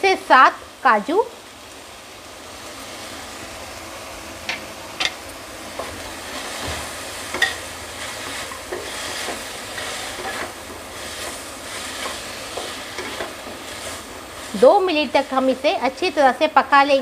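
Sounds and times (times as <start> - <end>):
vegetables sizzling in oil: 0.0 - 17.0
spatula scraping and knocking pan: 4.5 - 14.7.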